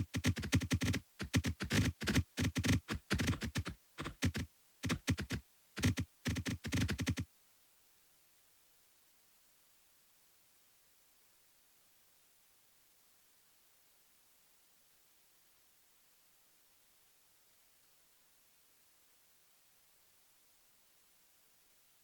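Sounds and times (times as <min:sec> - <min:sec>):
short clicks and taps: 0:00.0 - 0:07.2.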